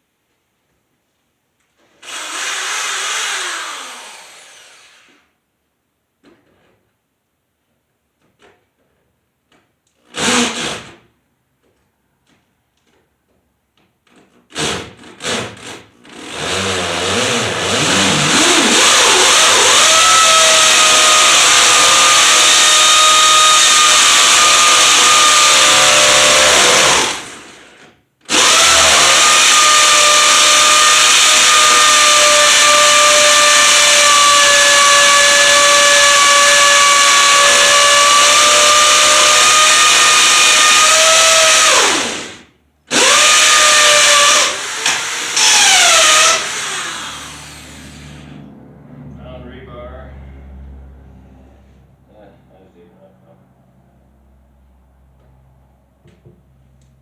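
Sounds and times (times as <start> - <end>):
electric power tool motor: 14.6 - 48.4.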